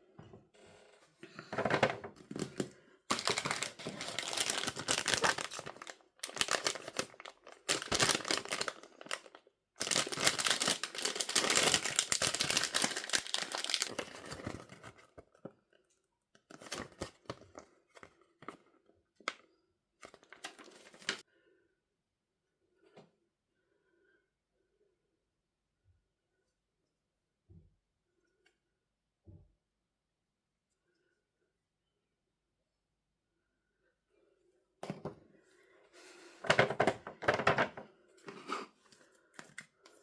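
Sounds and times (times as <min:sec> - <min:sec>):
packaging crinkling and tearing: 0:02.3 - 0:15.0, 0:16.4 - 0:18.6, 0:20.0 - 0:21.2.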